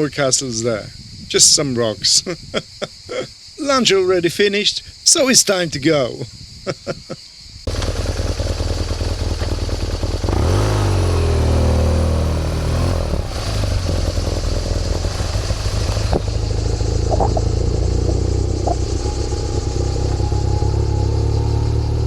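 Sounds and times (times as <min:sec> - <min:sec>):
rushing hiss: 0:07.7 - 0:17.0
motorcycle engine revving: 0:07.7 - 0:22.0.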